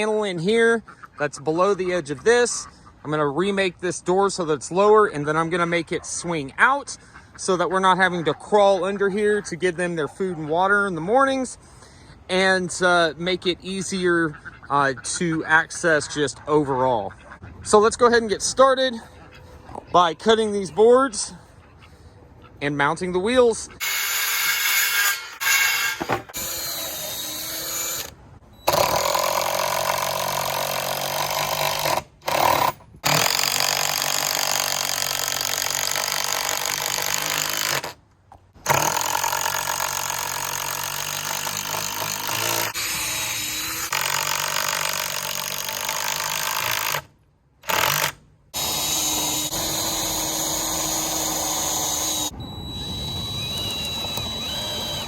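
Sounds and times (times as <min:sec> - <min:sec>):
power tool motor whine: 0:23.8 - 0:30.9, 0:41.5 - 0:44.3, 0:47.7 - 0:55.0.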